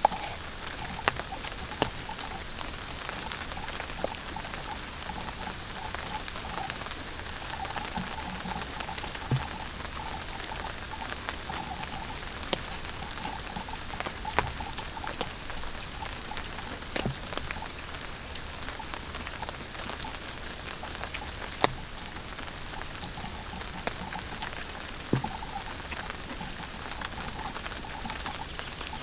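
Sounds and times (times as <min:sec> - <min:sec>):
rain pattering on a tarp: 0:00.0 - 0:29.0.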